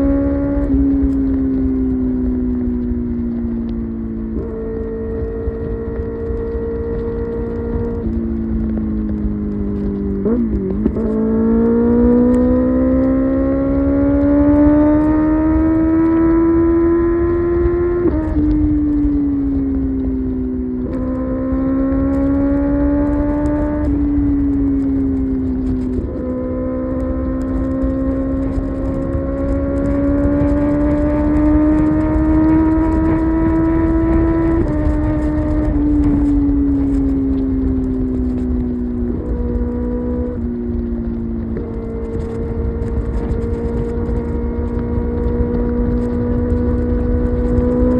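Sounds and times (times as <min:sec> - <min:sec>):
low wind rush: 0:00.0 - 0:47.9
motorcycle engine accelerating: 0:00.0 - 0:47.9.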